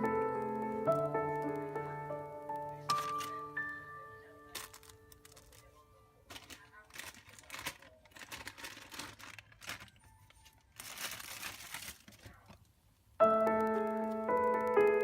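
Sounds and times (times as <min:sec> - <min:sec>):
piano music: 0:00.0 - 0:06.3, 0:13.2 - 0:15.0
packaging crinkling and rustling: 0:02.9 - 0:03.5, 0:04.5 - 0:12.7.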